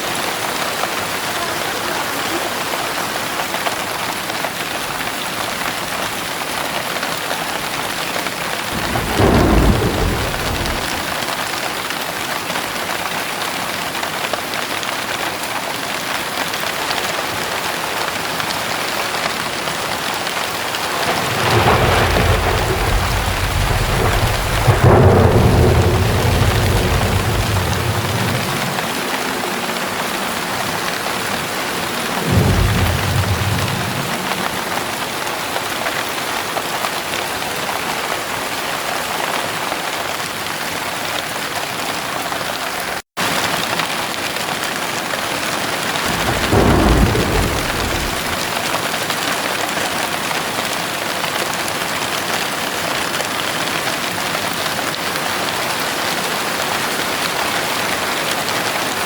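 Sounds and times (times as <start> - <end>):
heavy rain falling: 0.0 - 59.0
thunder rumbling: 8.3 - 11.6, 19.5 - 35.7, 45.5 - 48.9.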